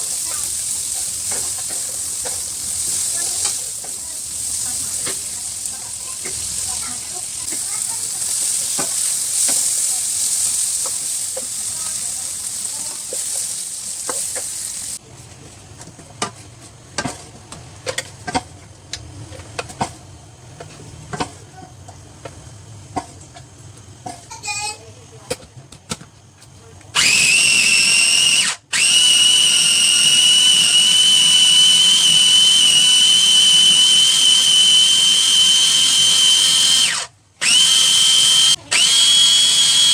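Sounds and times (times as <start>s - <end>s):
spatula scraping pan: 0.0s - 14.8s
food sizzling in a pan: 0.0s - 15.0s, 27.0s - 39.9s.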